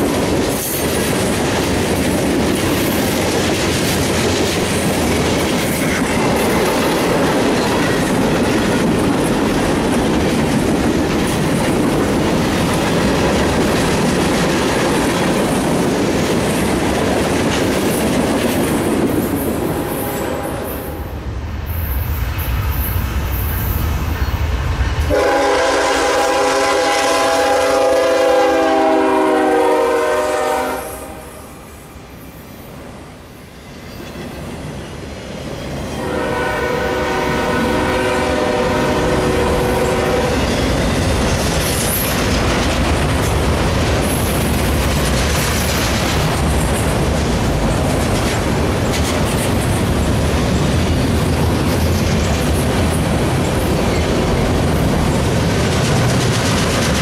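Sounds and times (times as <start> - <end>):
locomotive air horn blasts: 19.8 - 21.0, 25.1 - 31.6, 36.0 - 40.4.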